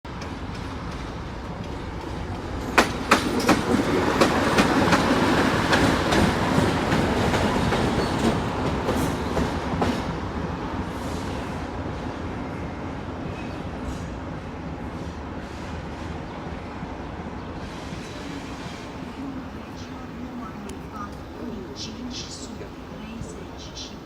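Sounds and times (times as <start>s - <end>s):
train wheels clicking over rail joints: 0.1s - 10.1s
train rumble: 0.1s - 24.0s.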